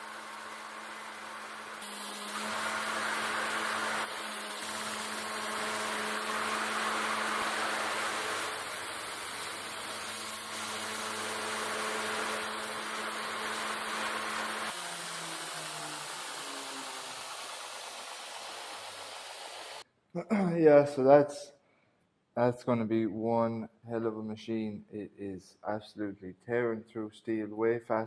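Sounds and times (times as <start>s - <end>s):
belt grinder motor hum: 0.0s - 19.8s
steel grinding on belt: 0.0s - 19.8s.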